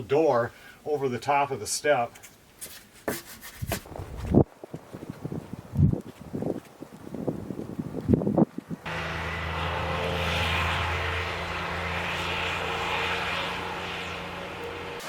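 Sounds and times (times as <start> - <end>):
engine drone: 8.8 - 15.0.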